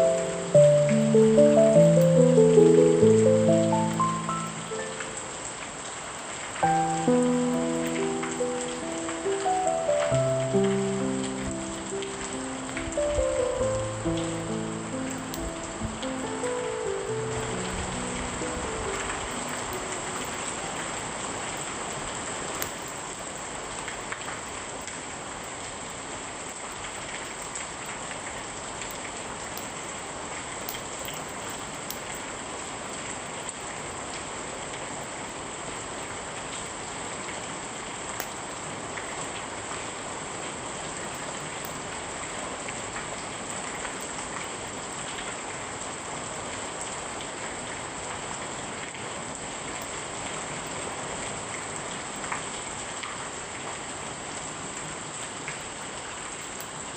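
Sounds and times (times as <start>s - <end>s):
rain pattering: 0.0s - 56.9s.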